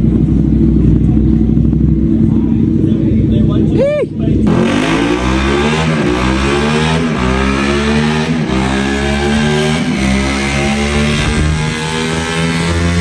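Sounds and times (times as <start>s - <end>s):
motorcycle engine revving hard: 4.4s - 13.0s.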